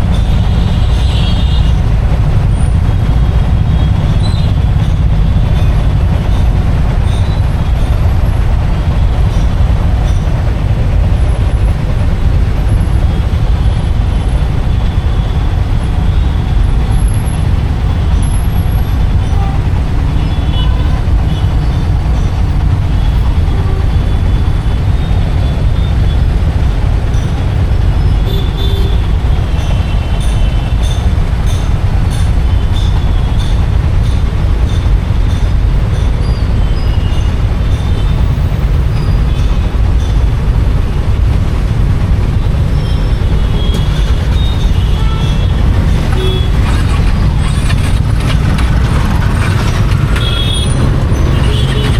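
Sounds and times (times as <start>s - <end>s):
motorcycle engine rumble: 0.0s - 51.9s.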